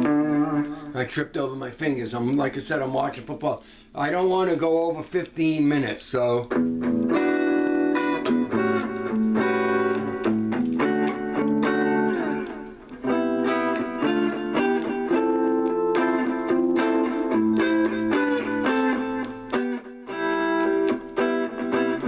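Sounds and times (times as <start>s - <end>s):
electric guitar playing: 0.0s - 1.0s, 6.4s - 22.0s.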